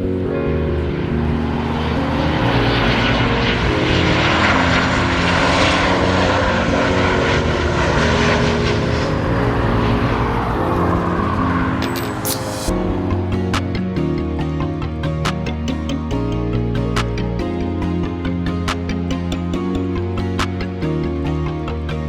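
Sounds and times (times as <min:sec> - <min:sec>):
background music: 0:00.0 - 0:22.0
airplane passing by: 0:00.9 - 0:12.7.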